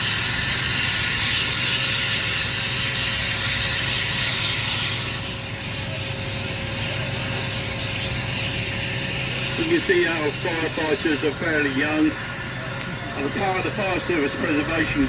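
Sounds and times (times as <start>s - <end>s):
engine running: 0.0s - 15.0s
loud hiss: 0.0s - 15.0s.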